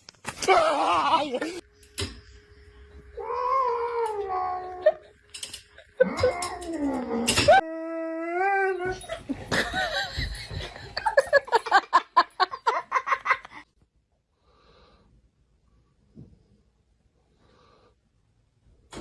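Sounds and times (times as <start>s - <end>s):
dog whining: 6.0s - 9.4s.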